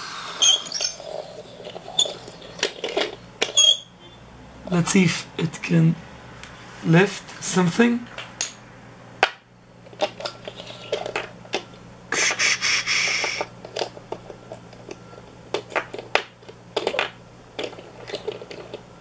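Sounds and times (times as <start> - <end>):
toy parts clicking and knocking: 0.5 - 3.7, 9.9 - 11.6, 13.0 - 18.8.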